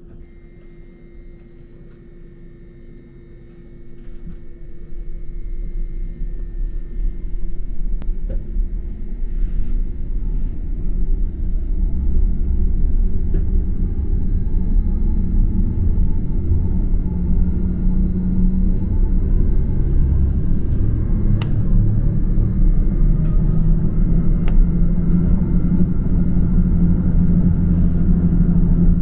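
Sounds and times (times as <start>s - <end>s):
steady high-pitched tones: 0.0s - 29.0s
train rumbling: 5.9s - 29.0s.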